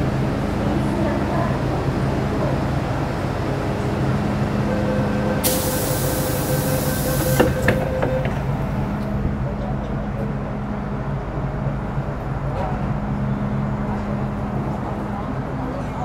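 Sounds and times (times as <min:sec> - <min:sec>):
train traction hum and whine: 0:00.0 - 0:16.0
compressed air hiss: 0:05.4 - 0:07.6.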